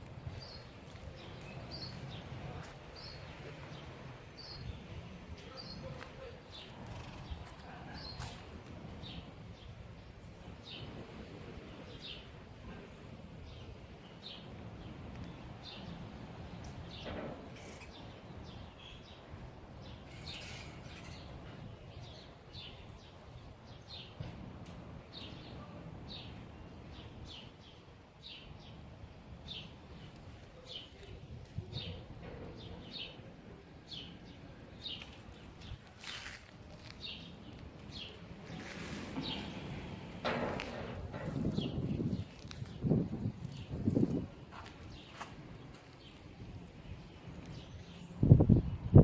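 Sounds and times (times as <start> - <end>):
low outdoor background noise: 0.0 - 49.0
small birds chirping: 0.2 - 9.7, 29.5 - 49.0.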